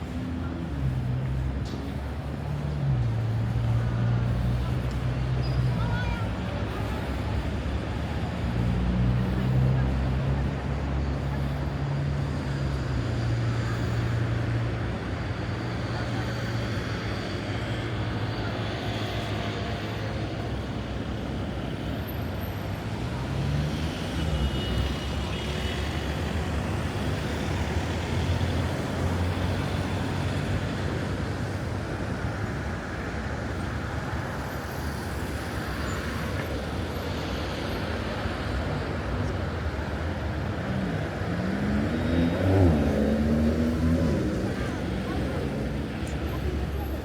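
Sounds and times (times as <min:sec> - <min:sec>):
street traffic hum: 0:00.0 - 0:47.0
vehicle accelerating: 0:40.2 - 0:46.8.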